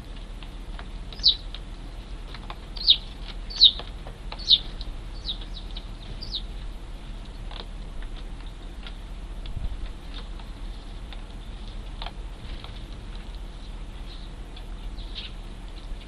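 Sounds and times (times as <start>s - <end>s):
sparrows chirping: 1.1s - 7.5s, 13.5s - 16.0s.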